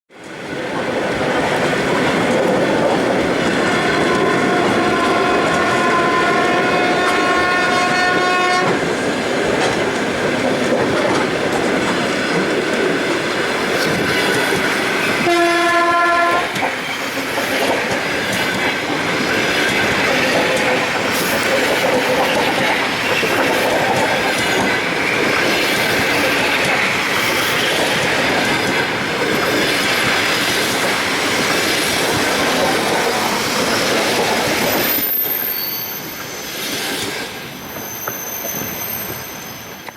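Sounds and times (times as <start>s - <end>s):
train wheel clatter and rumble: 0.1s - 39.9s
train horn blast: 3.4s - 8.8s, 15.2s - 16.6s
high wheel squeals: 33.2s - 39.9s.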